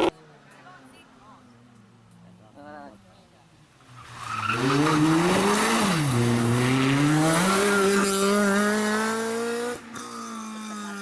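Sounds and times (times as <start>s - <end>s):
rally car engine revving: 4.0s - 11.0s.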